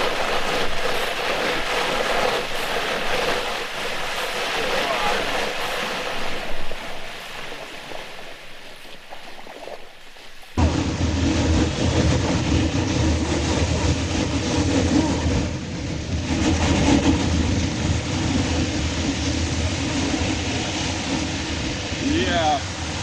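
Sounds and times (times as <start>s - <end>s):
canoe grinding through ice: 0.0s - 15.4s.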